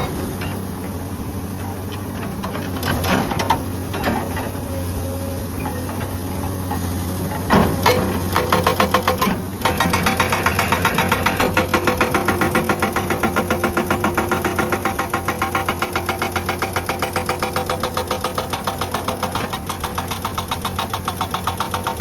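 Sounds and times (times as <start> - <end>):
excavator diesel engine running: 0.0 - 22.0
hydraulic breaker hammering rock: 7.3 - 22.0.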